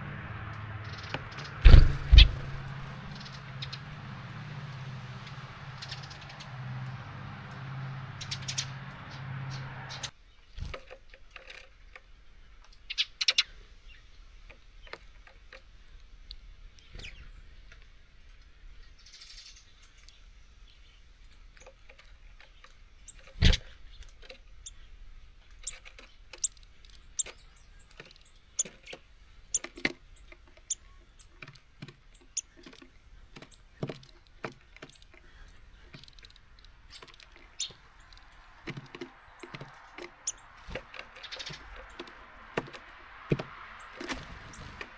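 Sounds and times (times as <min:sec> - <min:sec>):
birds chirping: 0:00.0 - 0:10.8, 0:16.1 - 0:44.9
beaks tapping on feeder: 0:00.9 - 0:03.9, 0:25.7 - 0:44.8
loud knock: 0:01.6 - 0:02.7.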